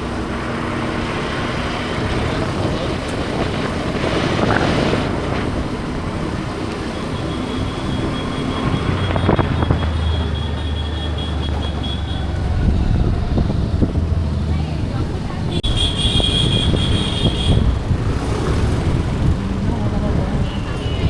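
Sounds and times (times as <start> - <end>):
traffic noise: 0.0 - 21.0
low engine hum: 11.6 - 16.9.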